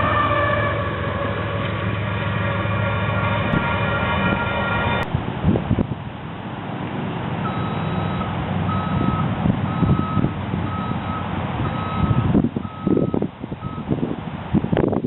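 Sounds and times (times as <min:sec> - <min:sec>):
truck engine running: 0:00.0 - 0:15.0
backup alarm beeping: 0:07.4 - 0:13.9.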